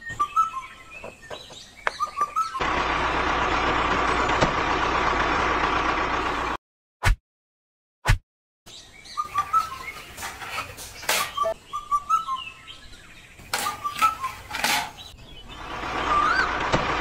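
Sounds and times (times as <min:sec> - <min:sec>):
small birds chirping: 0:00.0 - 0:02.6, 0:08.7 - 0:16.7.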